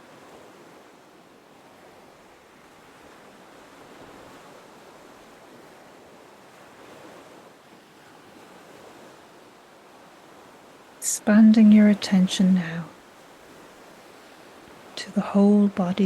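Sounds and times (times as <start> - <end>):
gentle ocean waves: 0.0 - 16.0.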